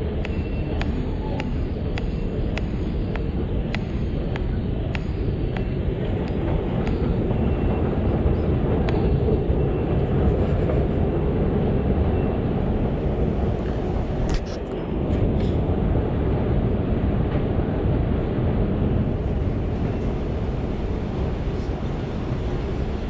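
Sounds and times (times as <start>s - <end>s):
underground station machinery rumble: 0.0s - 23.0s
footsteps clicking: 0.2s - 7.2s.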